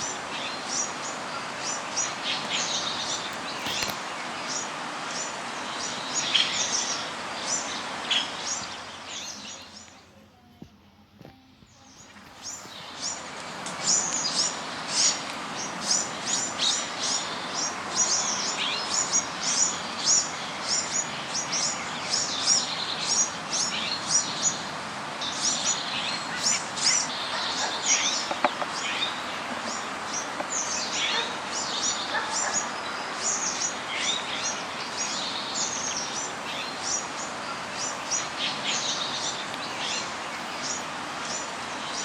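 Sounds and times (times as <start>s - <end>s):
birds chirping: 0.0s - 42.0s
steady background hiss: 0.0s - 42.0s.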